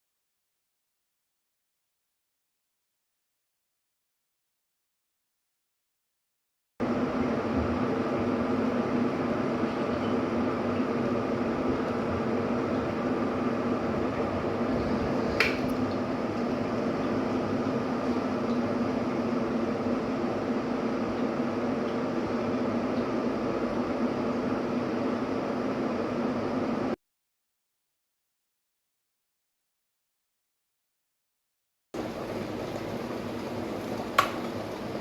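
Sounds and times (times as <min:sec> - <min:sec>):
electric kettle heating water: 0:06.8 - 0:27.0, 0:32.0 - 0:35.0
kettle switch click: 0:15.4 - 0:15.8, 0:34.2 - 0:34.4.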